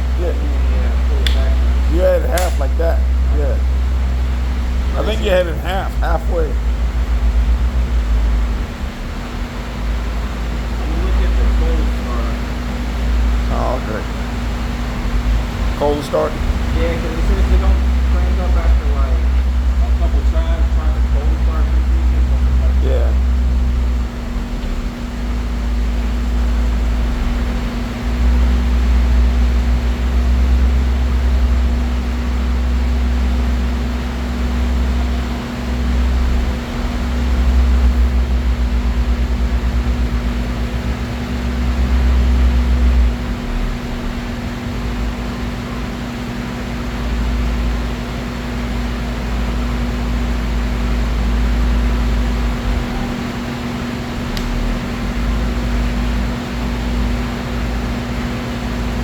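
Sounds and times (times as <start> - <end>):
chainsaw engine running: 4.9 - 6.5.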